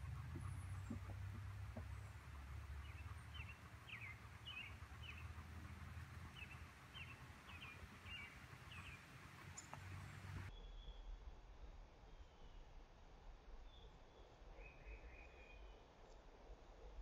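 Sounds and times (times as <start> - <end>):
small bird chirping: 0.0 - 11.0
low outdoor rumble: 0.0 - 17.0.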